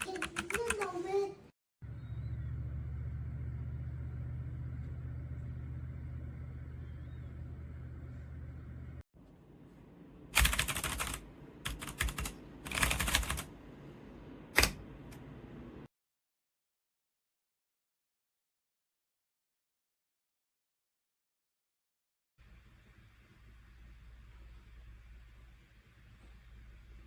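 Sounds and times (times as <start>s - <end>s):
steady low hum: 1.8s - 15.9s.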